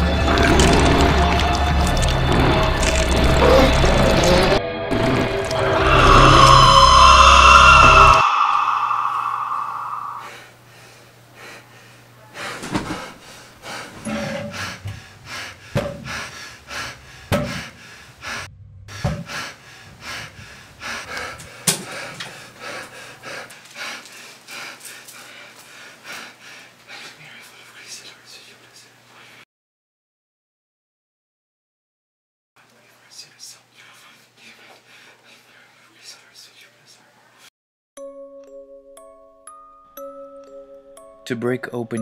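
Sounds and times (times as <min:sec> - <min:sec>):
music: 0:00.0 - 0:07.1, 0:38.0 - 0:42.0
man breathing heavily with gasps: 0:05.8 - 0:27.4.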